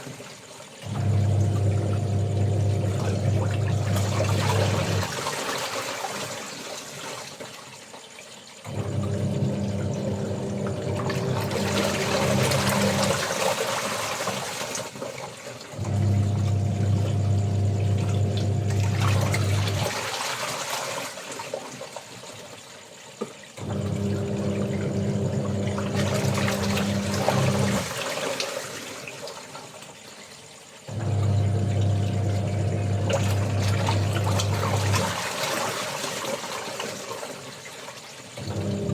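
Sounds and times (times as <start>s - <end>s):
water and clothes swishing: 0.0s - 38.9s
washing machine motor humming: 0.8s - 5.4s, 8.7s - 14.7s, 15.7s - 20.2s, 23.6s - 28.2s, 30.9s - 35.8s, 38.4s - 38.9s.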